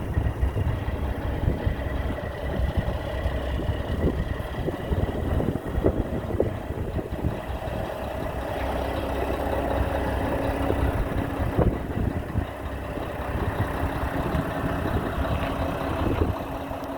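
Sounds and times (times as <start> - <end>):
diesel truck engine idling: 0.0 - 16.9.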